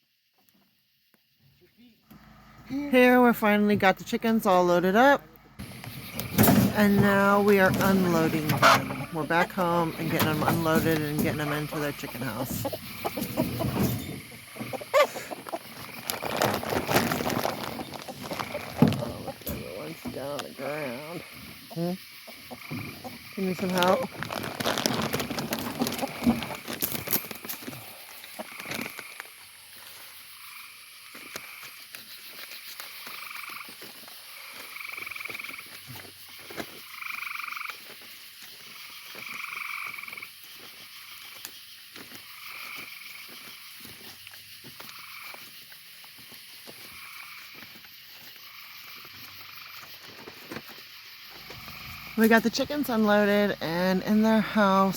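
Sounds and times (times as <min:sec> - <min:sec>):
frogs calling in chorus: 0:04.8 - 0:54.9.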